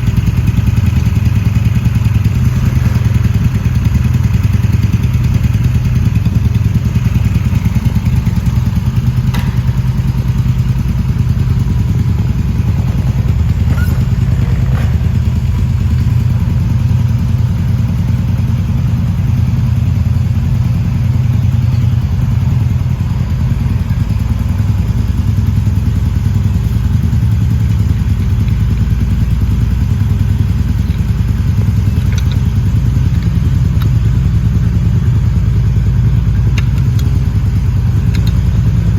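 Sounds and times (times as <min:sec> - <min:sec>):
motorcycle engine idling: 0:00.0 - 0:38.9
faint clicks and knocks: 0:30.7 - 0:34.1, 0:38.0 - 0:38.7.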